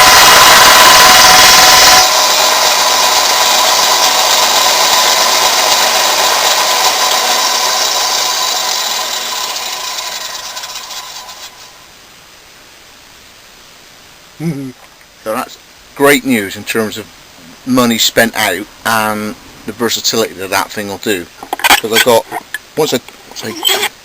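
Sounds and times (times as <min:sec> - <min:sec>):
grinder machine winding down: 0:00.0 - 0:11.8.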